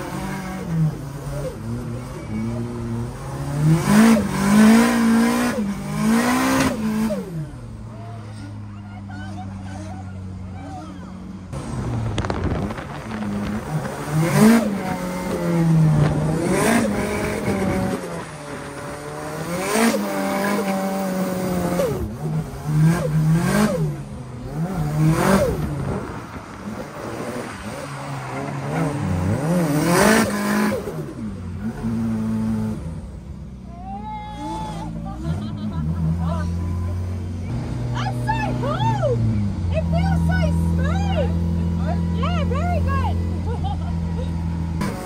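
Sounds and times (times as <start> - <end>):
car engine revving hard: 0.0 - 7.6, 11.6 - 33.1, 44.4 - 45.0.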